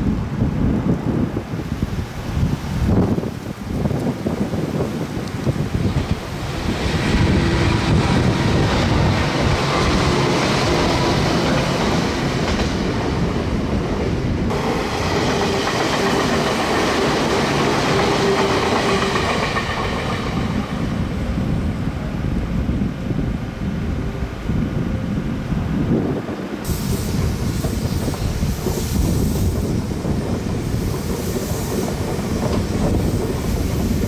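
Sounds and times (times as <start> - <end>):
train wheels rumbling on track: 2.5 - 34.0
clickety-clack over rail joints: 5.2 - 21.0, 26.6 - 34.0.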